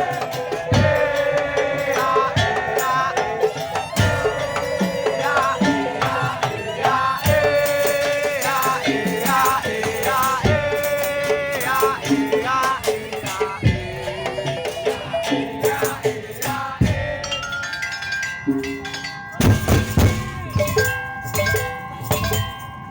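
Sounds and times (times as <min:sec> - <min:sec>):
percussion ensemble melody: 0:00.0 - 0:22.9
deep drum hits: 0:19.4 - 0:21.1.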